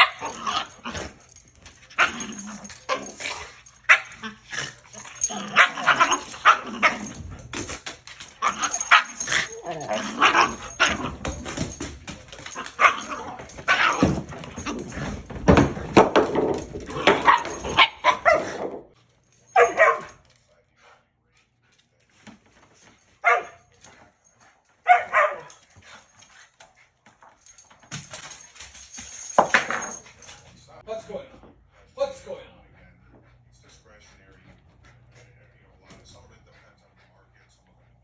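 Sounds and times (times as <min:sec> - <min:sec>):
dogs barking: 0:00.0 - 0:00.9, 0:03.8 - 0:07.2, 0:08.4 - 0:11.2, 0:12.4 - 0:14.9, 0:17.0 - 0:18.8, 0:19.5 - 0:20.2, 0:23.2 - 0:23.7, 0:24.8 - 0:25.6.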